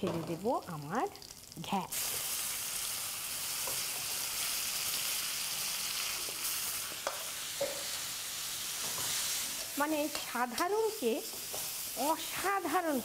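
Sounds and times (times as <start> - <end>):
food sizzling in hot fat: 0.0 - 13.0.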